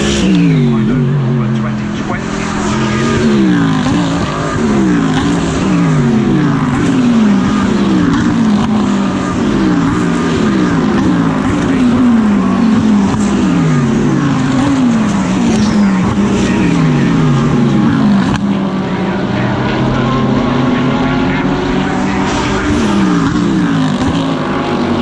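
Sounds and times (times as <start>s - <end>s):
race car engines passing by: 0.0s - 25.0s.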